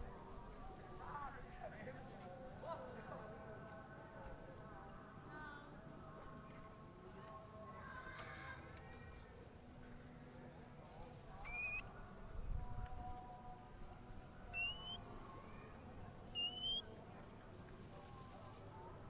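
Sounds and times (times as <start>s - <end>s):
bird giving rising whistles: 11.4s - 11.8s, 14.6s - 15.0s, 16.3s - 16.8s.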